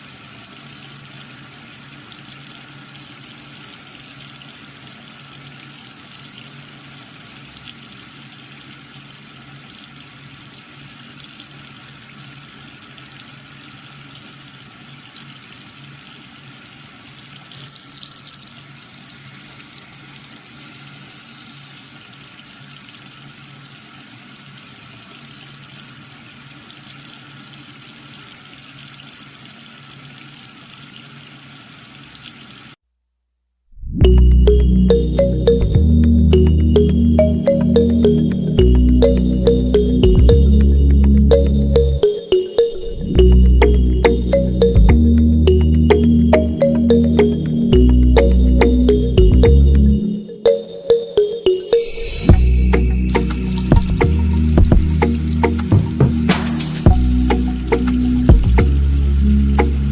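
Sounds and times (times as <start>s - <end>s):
water running and splashing: 0.0s - 32.8s, 52.3s - 59.9s.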